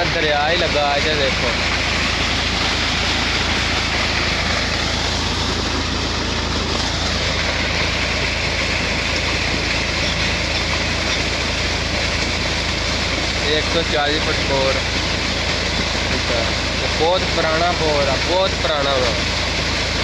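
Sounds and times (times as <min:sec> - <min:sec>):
tractor engine running: 0:00.0 - 0:20.0
water gushing from pipe: 0:00.0 - 0:20.0.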